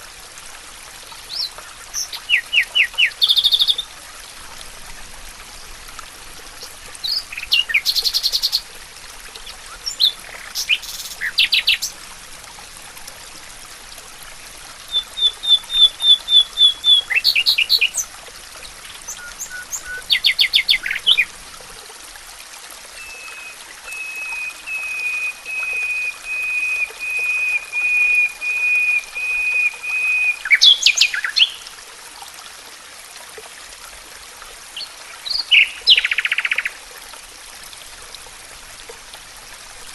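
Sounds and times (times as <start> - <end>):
songbirds singing: 1.1 - 3.9, 6.6 - 8.7, 9.4 - 12.0, 14.9 - 21.3, 23.0 - 31.7, 34.8 - 36.8.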